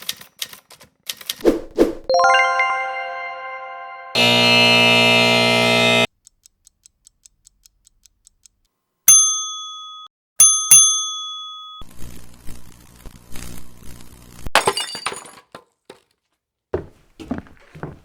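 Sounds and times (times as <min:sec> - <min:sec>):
electric lamp hum: 0:04.2 - 0:06.1
bell dinging: 0:09.1 - 0:11.8
crackles: 0:11.9 - 0:14.5
glass shattering: 0:14.6 - 0:15.5.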